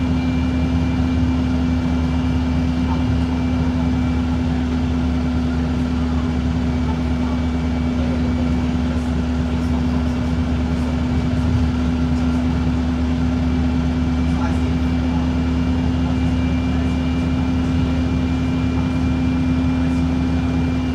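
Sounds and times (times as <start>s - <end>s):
diesel bus engine droning: 0.0s - 20.9s.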